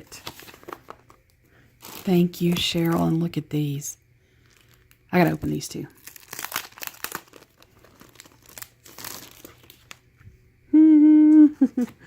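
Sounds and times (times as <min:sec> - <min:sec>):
packaging crinkling and tearing: 0:00.0 - 0:03.3, 0:04.4 - 0:10.1
woman's voice holding a note: 0:02.0 - 0:04.0, 0:05.1 - 0:06.0.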